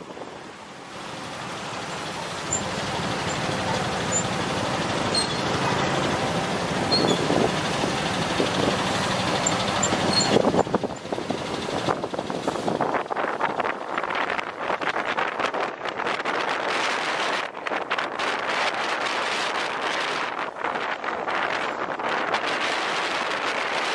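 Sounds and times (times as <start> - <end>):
road noise: 0.0 - 23.9
motorbike engine: 1.4 - 12.6.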